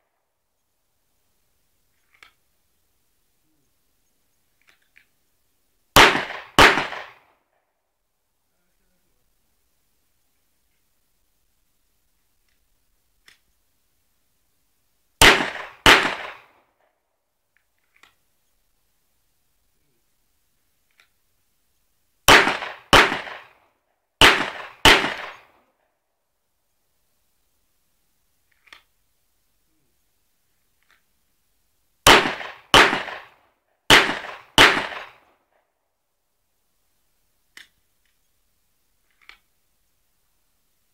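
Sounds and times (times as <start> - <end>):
pistol shots with echo: 6.0 - 7.3, 15.2 - 16.5, 22.3 - 23.6, 24.2 - 25.6, 32.1 - 35.2.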